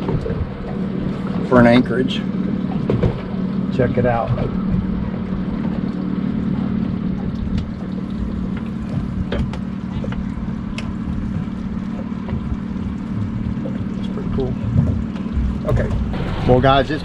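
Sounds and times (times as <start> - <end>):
boat engine running: 0.0 - 17.0
wind buffeting microphone: 2.7 - 5.9.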